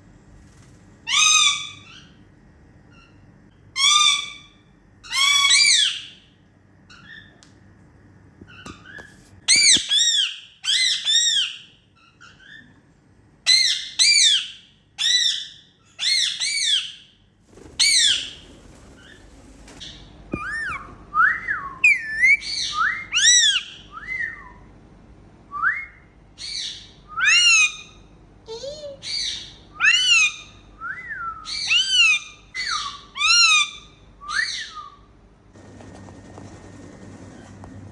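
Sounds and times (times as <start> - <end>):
parakeets calling: 17.8 - 21.0, 21.8 - 23.7.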